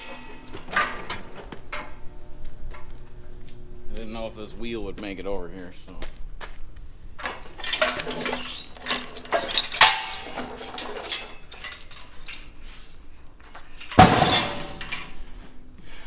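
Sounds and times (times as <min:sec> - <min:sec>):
metal clang: 0:00.0 - 0:03.4, 0:07.2 - 0:15.5
metal clanking and rattling: 0:00.0 - 0:04.0, 0:07.1 - 0:15.6.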